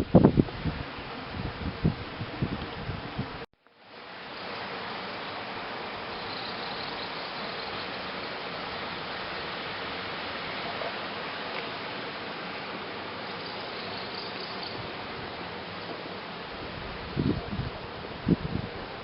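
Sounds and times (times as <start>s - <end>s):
insects chirring: 4.0s - 15.1s.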